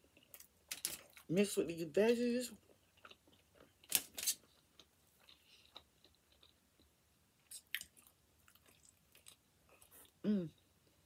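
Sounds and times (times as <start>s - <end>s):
chewing with mouth clicks: 2.6s - 10.6s.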